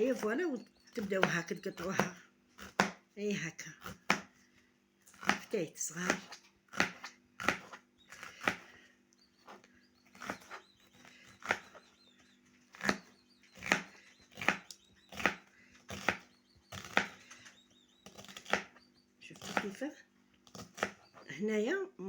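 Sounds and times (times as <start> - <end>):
knife chopping on cutting board: 1.1 - 3.0, 3.8 - 4.3, 5.1 - 8.7, 11.3 - 11.8, 12.7 - 17.2, 18.1 - 18.8, 19.4 - 19.8, 20.5 - 21.1.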